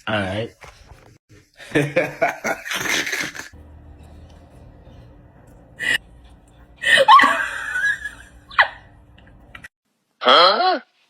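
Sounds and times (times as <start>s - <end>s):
low steady hum: 3.6s - 9.7s.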